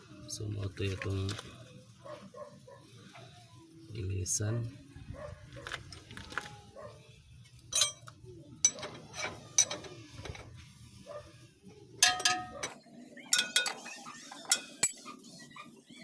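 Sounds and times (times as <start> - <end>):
metal tools clanking: 7.7 - 10.5, 12.0 - 15.3.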